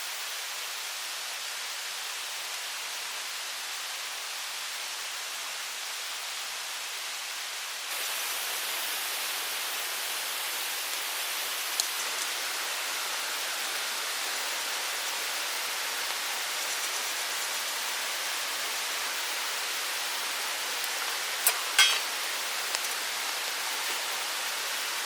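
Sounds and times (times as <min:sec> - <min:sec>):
mountain stream rushing: 0:07.9 - 0:25.0.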